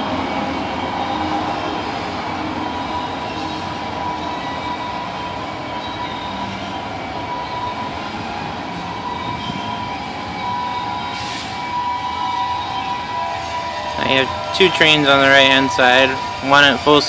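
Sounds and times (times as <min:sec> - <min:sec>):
freight train rolling: 0:00.0 - 0:17.0
train wheels squealing: 0:02.2 - 0:07.7, 0:08.8 - 0:11.8.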